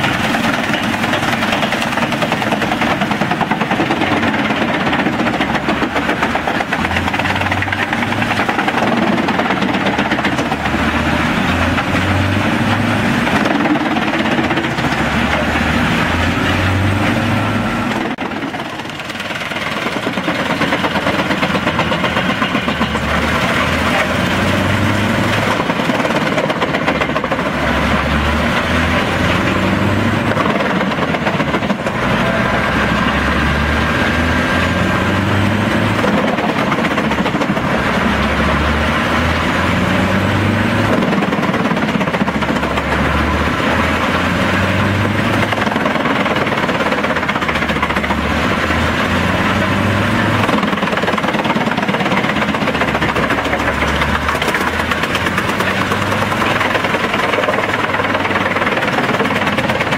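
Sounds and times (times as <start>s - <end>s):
wood chipper running under load: 0.0s - 59.9s.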